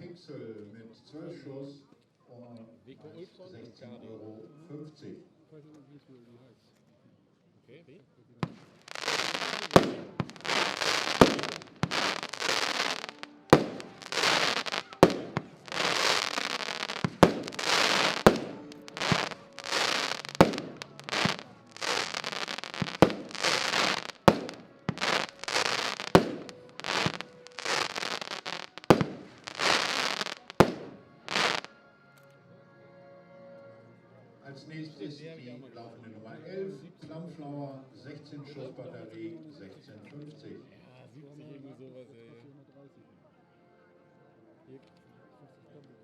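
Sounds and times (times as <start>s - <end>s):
firework bangs with crackle: 8.4s - 31.7s.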